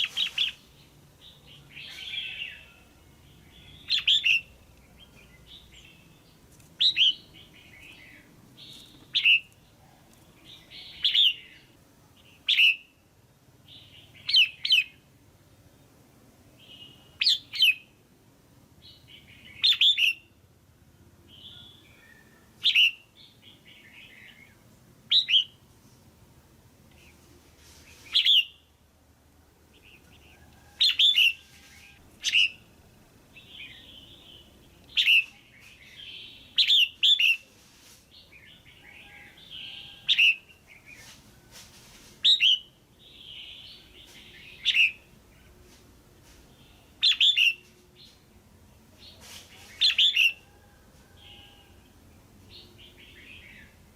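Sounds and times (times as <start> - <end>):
bird calling sharply: 28.0 - 28.6.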